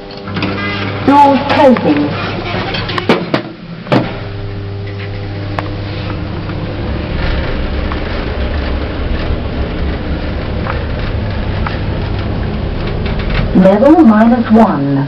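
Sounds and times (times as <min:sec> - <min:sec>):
lift car humming: 0:00.0 - 0:15.0
lift doors knocking shut: 0:00.4 - 0:04.4
low rumble: 0:03.6 - 0:15.0.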